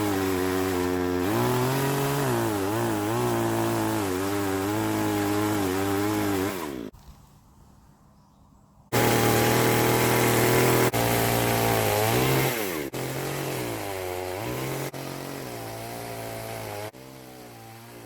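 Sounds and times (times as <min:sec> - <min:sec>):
chainsaw cutting wood: 0:00.0 - 0:07.0, 0:08.9 - 0:18.0.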